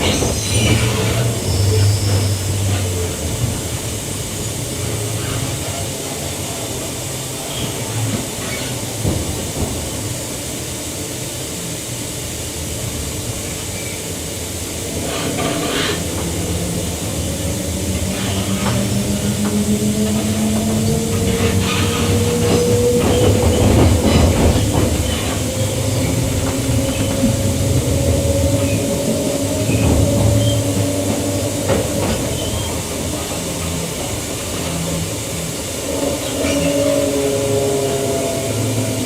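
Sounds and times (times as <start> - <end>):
electric train motor whine: 13.7 - 39.0
wheels clicking over rail joints: 14.9 - 37.1.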